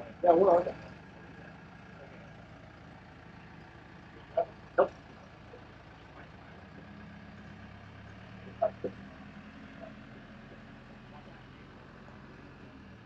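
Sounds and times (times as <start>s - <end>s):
heavy vehicle engine idling: 0.0s - 13.0s.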